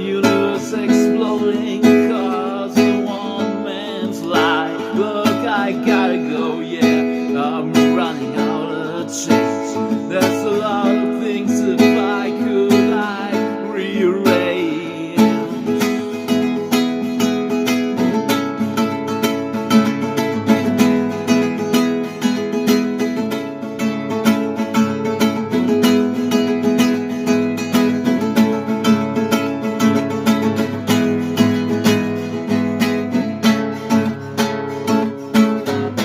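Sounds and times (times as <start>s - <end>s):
man singing: 0.0s - 18.1s
acoustic guitar strumming: 0.0s - 36.0s.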